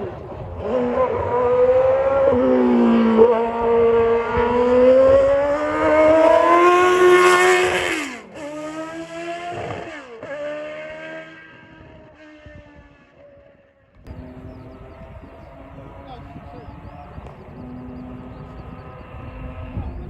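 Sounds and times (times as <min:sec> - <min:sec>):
racing car engine at high revs: 0:00.0 - 0:20.0.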